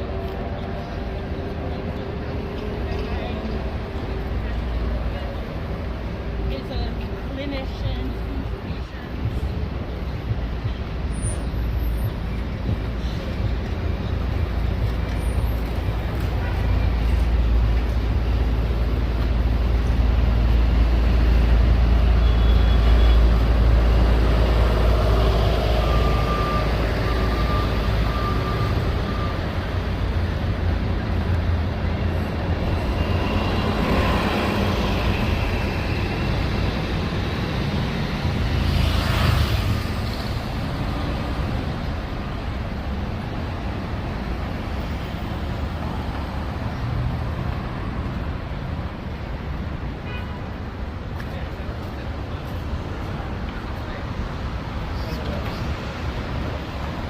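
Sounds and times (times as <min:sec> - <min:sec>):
road traffic: 0:00.0 - 0:57.0
short beeps: 0:25.7 - 0:29.6.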